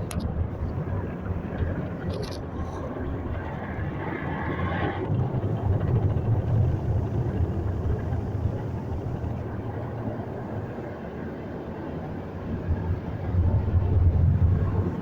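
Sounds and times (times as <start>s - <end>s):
car wash machinery rumbling: 3.2s - 15.0s.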